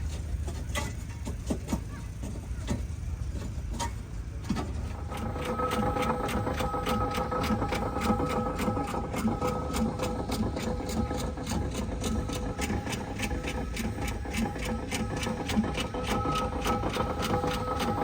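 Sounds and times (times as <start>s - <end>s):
engine clattering: 0.0s - 18.0s
steady whining tones: 4.7s - 18.0s.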